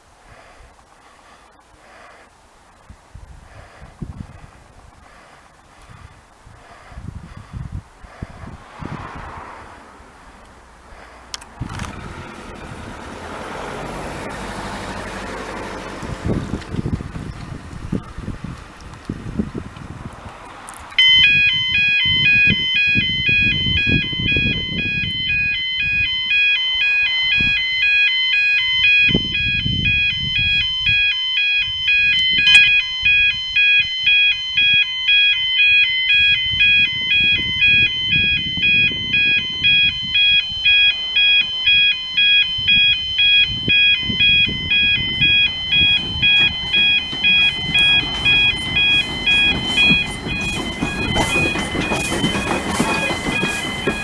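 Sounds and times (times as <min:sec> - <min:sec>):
two-tone electronic warning alarm: 0:12.0 - 0:16.9, 0:21.0 - 0:54.0.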